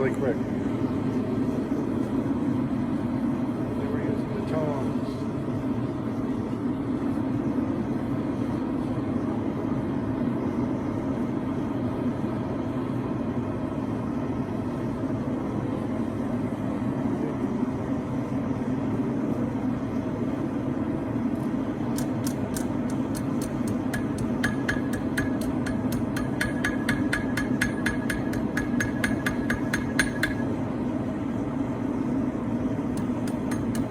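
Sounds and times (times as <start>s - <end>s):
forge burner rushing: 0.0s - 33.9s
light hammer blows on anvil: 22.0s - 30.5s.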